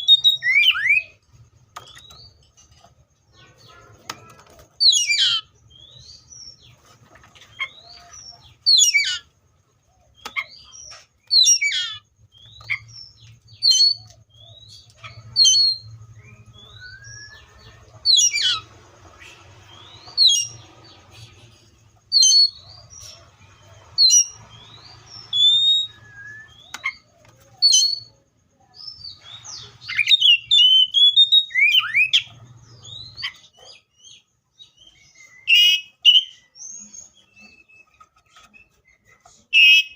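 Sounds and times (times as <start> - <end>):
bird singing whistled phrases: 0.0 - 1.2, 15.4 - 17.4, 25.3 - 28.1, 34.9 - 37.9, 39.5 - 39.9.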